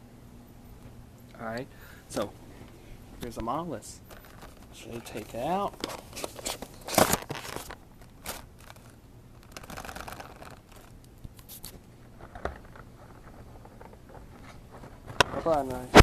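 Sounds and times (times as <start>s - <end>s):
packaging rustling and crinkling: 4.0s - 16.0s.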